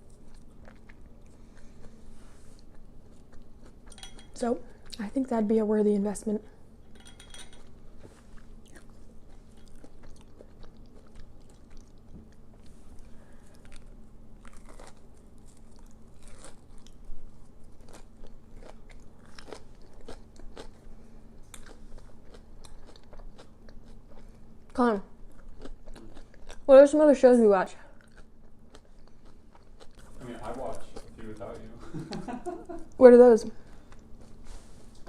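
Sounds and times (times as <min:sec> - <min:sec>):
chewing: 0:00.0 - 0:05.0, 0:07.6 - 0:26.7, 0:27.9 - 0:32.3
crunching onion rings: 0:08.5 - 0:24.4.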